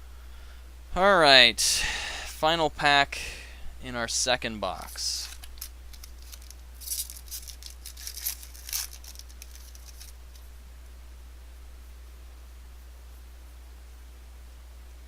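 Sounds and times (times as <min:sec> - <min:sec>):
steady low hum: 0:00.0 - 0:15.0
foil wrapper tearing and crinkling: 0:05.2 - 0:10.4.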